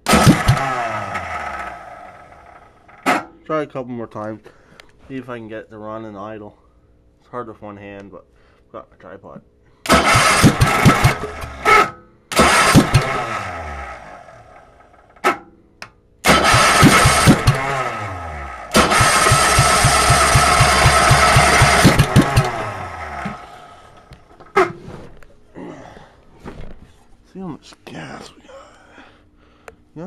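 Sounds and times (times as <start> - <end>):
small engine cranking and sputtering: 0.0 - 3.0, 9.9 - 15.0, 16.2 - 24.0.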